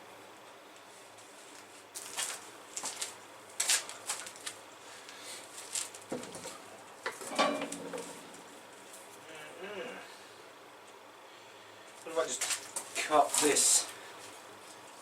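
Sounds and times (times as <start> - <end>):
metal parts clanking: 7.1 - 8.4
ringing metal knock: 7.3 - 8.3.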